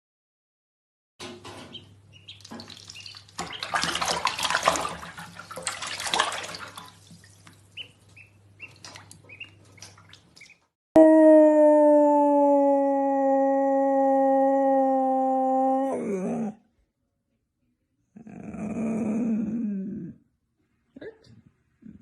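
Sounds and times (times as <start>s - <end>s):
tap water running into sink: 2.4s - 7.8s.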